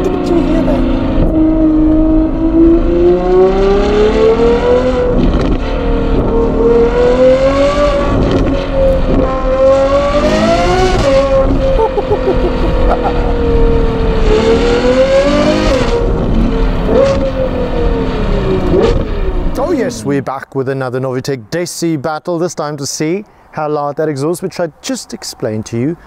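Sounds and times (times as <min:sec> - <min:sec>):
sports car engine accelerating: 0:00.0 - 0:19.7.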